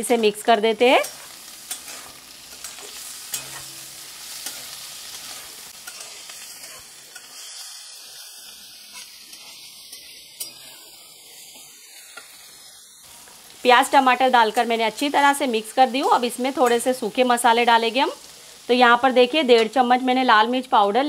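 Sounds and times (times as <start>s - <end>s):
food sizzling in a pan: 0.0s - 21.0s
metal spatula scraping: 1.0s - 13.6s.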